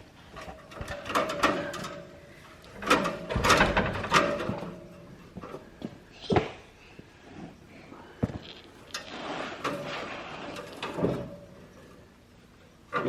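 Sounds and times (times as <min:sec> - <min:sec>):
clattering knocks and rattles: 0:00.3 - 0:06.5.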